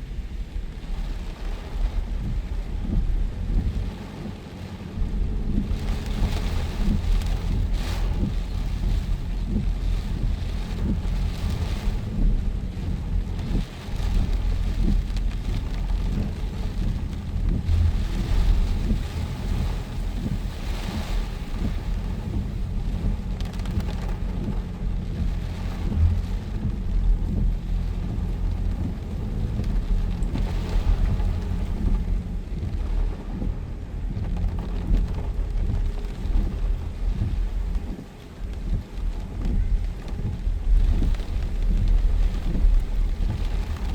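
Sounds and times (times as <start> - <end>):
wind rumbling on microphone: 0.0 - 43.9.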